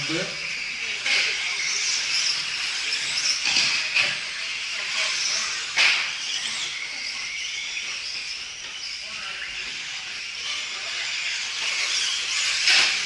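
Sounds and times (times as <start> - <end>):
electric motors and tyres hissing: 0.0 - 13.0.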